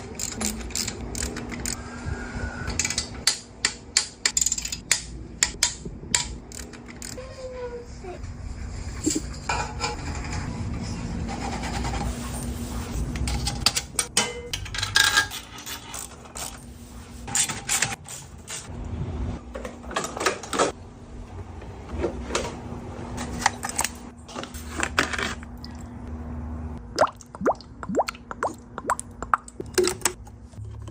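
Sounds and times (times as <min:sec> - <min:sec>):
metal tools clinking and clattering: 0:13.2 - 0:16.6.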